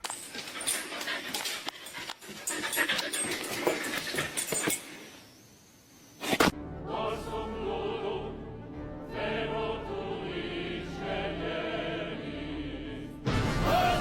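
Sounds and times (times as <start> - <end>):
dog panting rapidly: 0.2 - 4.7.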